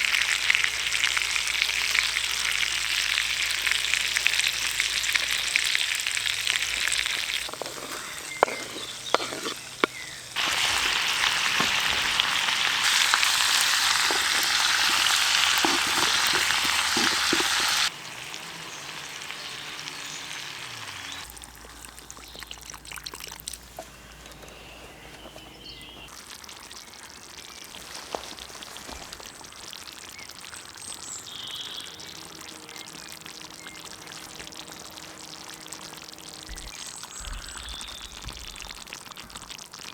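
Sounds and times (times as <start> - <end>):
meat sizzling in a pan: 0.0 - 21.4.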